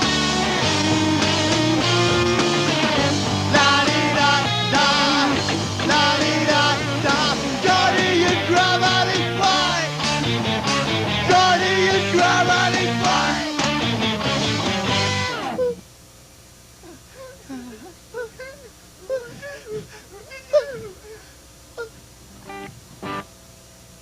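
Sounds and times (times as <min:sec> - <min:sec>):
rock band playing with singer: 0:00.0 - 0:15.8.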